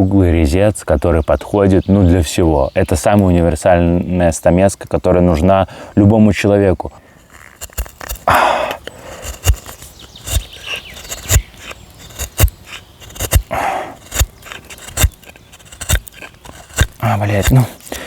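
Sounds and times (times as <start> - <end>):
carving gouge cracking through wood: 7.0 - 18.0
rough hoarse bursts: 7.0 - 18.0.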